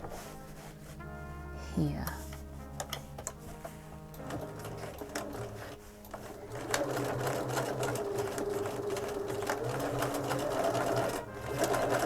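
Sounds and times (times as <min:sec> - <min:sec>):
sewing machine running: 0:04.2 - 0:12.0.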